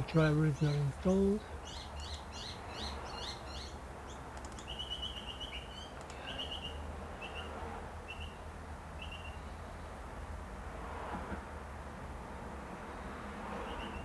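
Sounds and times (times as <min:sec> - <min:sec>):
bird chirping: 0:00.0 - 0:07.5.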